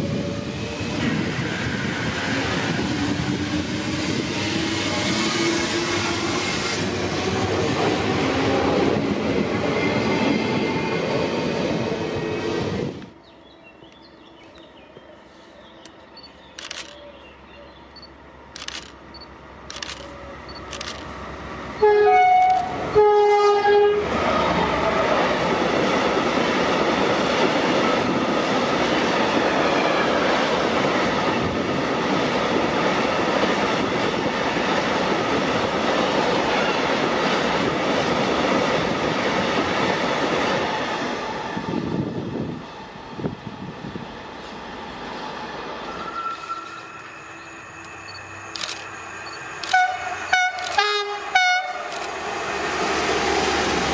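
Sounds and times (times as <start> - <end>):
train wheels rushing on rail: 0.0 - 13.2, 18.1 - 53.9
train horn blasts: 21.8 - 24.3, 49.7 - 51.9.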